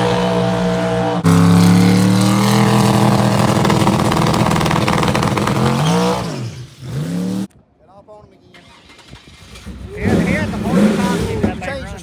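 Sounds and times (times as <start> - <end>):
pickup engine at full throttle: 0.0 - 7.5, 9.0 - 12.0.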